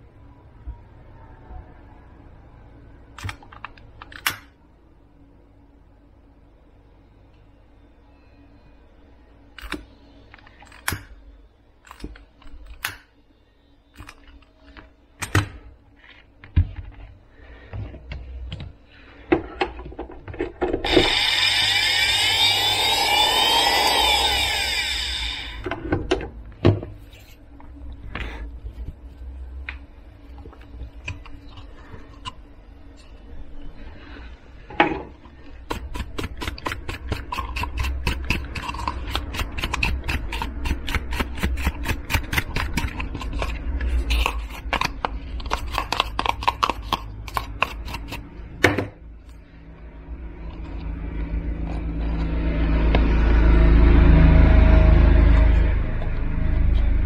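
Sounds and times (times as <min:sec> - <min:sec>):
small electric motor running: 0:20.8 - 0:25.7.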